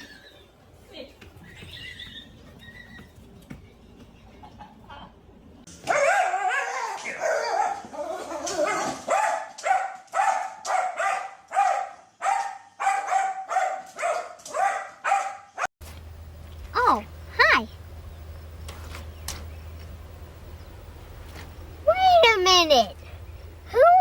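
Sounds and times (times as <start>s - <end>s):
dog yipping: 5.8s - 15.7s.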